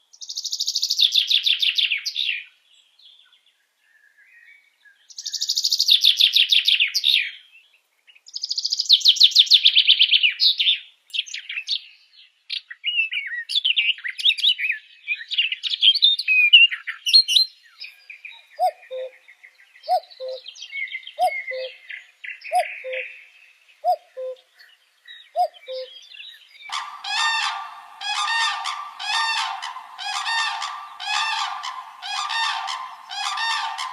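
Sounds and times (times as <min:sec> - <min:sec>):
bird harsh honking call: 0:26.7 - 0:33.9
bird high trills: 0:26.7 - 0:33.9
bird quick chirps: 0:26.7 - 0:33.9.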